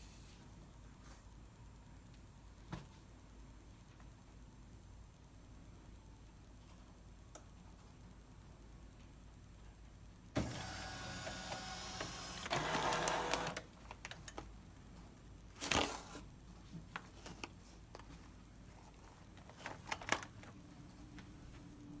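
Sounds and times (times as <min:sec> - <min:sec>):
vacuum sealer pump running: 0:10.4 - 0:14.2.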